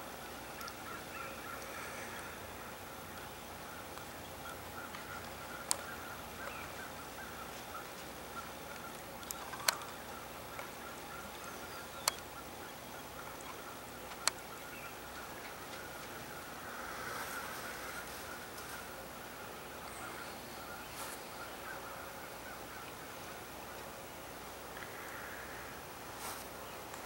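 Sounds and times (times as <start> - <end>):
distant bird chatter: 0.0 - 27.0
steady outdoor hiss: 0.0 - 27.0
sharp clicks: 12.0 - 12.3, 14.1 - 14.4.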